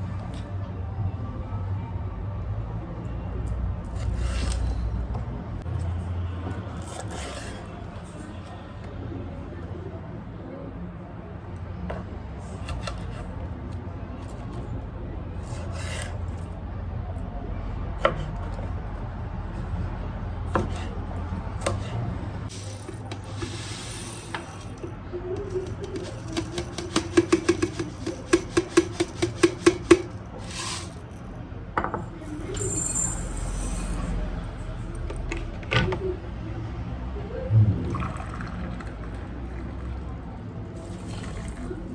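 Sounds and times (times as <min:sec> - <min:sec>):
clicks and rubbing: 0:22.5 - 0:31.3
low hum: 0:37.3 - 0:38.8.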